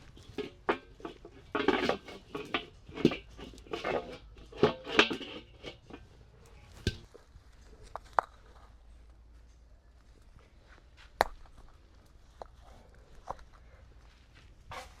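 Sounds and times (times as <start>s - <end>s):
metal pots and utensils clattering: 0.0s - 7.1s.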